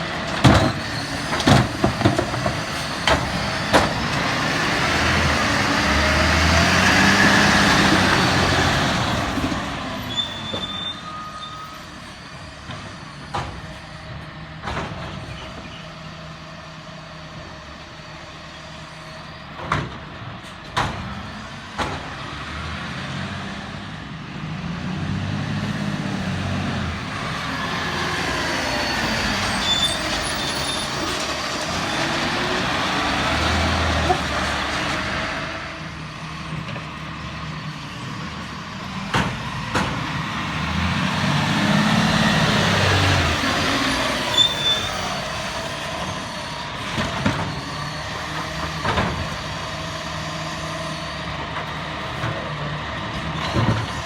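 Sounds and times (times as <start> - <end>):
sharp bangs and clunks: 0.0 - 4.7, 14.6 - 15.8, 19.6 - 22.4, 38.9 - 40.4
garbage truck engine revving: 0.0 - 10.5, 20.2 - 54.0.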